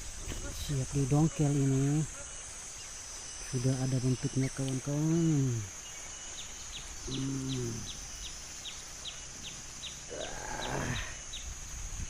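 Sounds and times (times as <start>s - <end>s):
insect drone: 0.0s - 12.0s
man humming: 7.0s - 8.0s, 10.1s - 11.2s.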